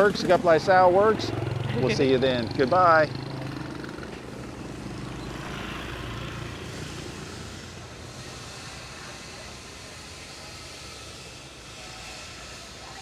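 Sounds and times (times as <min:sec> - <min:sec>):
traffic engine rumble: 0:00.0 - 0:13.0
hiss: 0:06.8 - 0:13.0.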